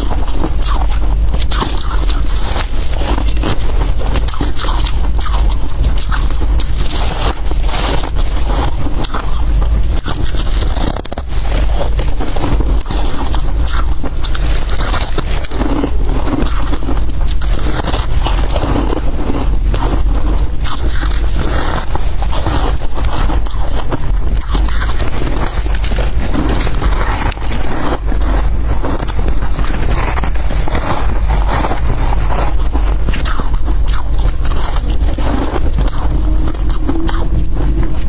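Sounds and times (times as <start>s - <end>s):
frost being crunched: 0.0s - 38.0s.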